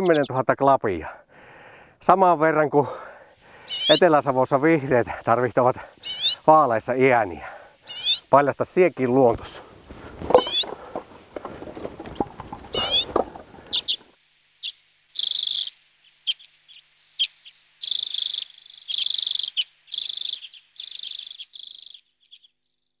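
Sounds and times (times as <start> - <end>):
small bird trilling: 3.7 - 4.0, 6.0 - 6.4, 7.9 - 8.3, 10.3 - 10.7, 11.8 - 14.1, 15.2 - 22.5.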